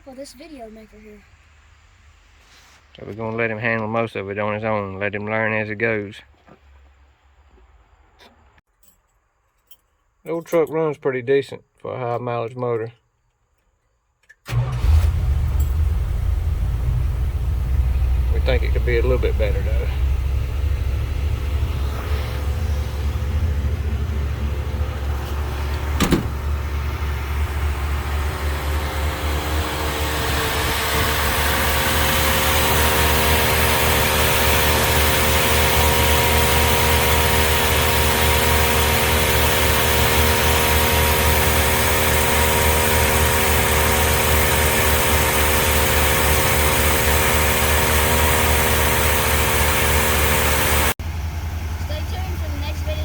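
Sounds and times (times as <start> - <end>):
truck engine idling: 14.5 - 53.0.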